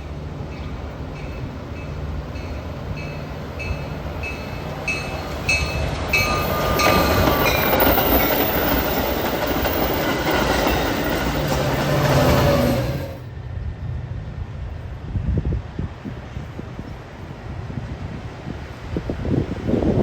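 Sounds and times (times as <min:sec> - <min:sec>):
train wheels rolling on rails: 0:00.0 - 0:13.4
bell ringing: 0:03.0 - 0:08.0.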